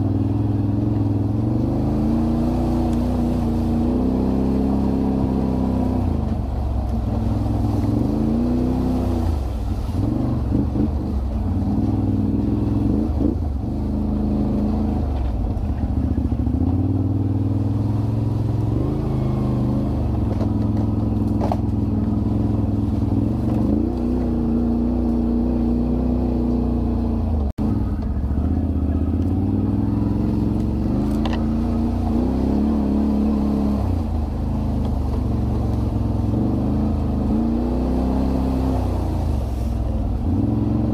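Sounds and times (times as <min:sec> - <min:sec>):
atv engine revving: 0:00.0 - 0:40.9.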